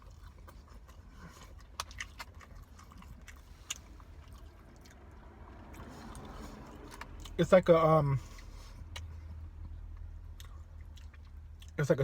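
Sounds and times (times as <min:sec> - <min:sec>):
person chewing food: 0:00.0 - 0:07.4, 0:08.2 - 0:11.8.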